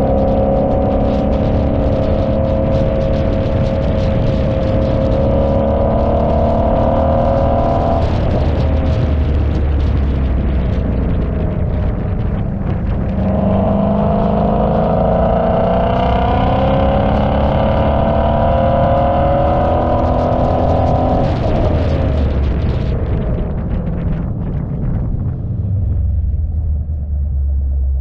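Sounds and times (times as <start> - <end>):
car engine accelerating: 0.0 - 24.4.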